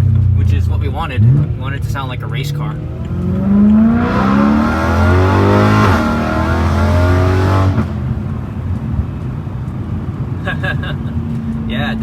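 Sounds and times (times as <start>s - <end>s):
car engine revving hard: 1.0s - 8.4s.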